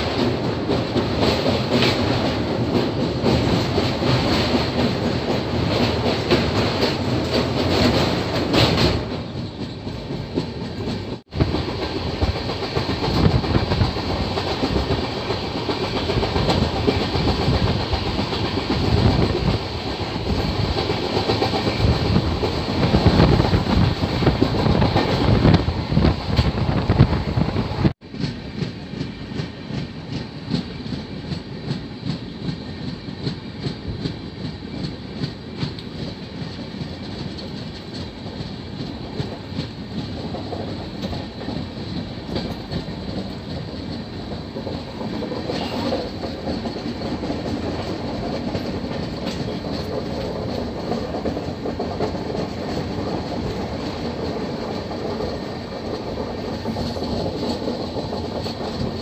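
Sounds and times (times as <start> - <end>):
train wheels clacking on rails: 0.0 - 59.0.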